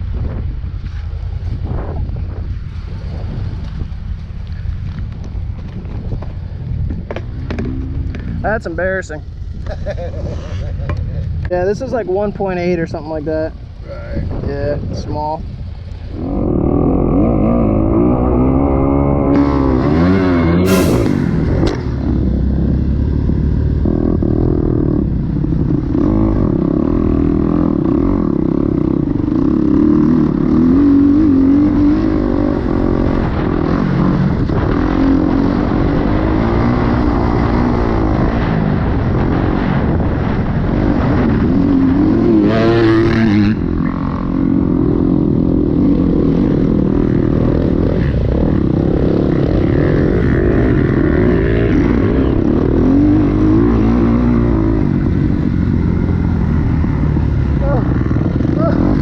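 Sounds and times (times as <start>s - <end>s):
dirt bike engine revving: 16.2s - 22.7s, 40.7s - 59.0s.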